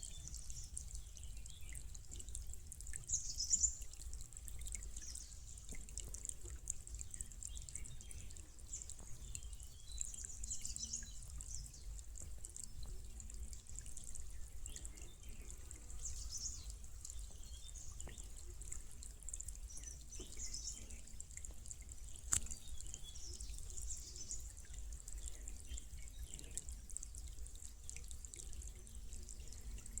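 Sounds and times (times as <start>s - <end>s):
light dripping: 0.0s - 30.0s
stream trickling over rock: 0.0s - 30.0s
sharp click: 22.3s - 22.5s.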